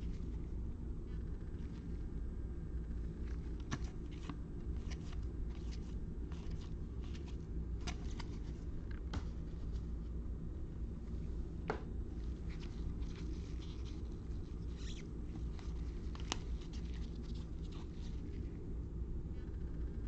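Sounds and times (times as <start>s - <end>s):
low hum: 0.0s - 20.0s
cards rustling and clicking: 3.0s - 10.0s, 12.2s - 18.6s.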